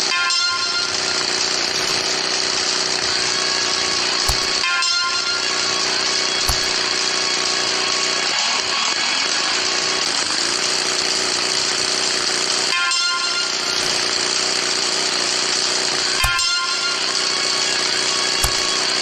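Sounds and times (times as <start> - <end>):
motorcycle engine running: 0.8 - 8.4, 9.6 - 19.0.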